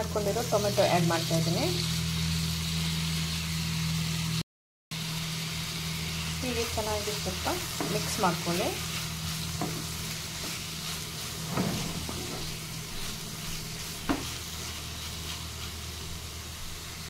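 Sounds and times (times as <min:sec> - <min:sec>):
vegetables sizzling in oil: 0:00.0 - 0:04.4, 0:05.0 - 0:17.0
spatula knocking on pan: 0:14.0 - 0:14.3.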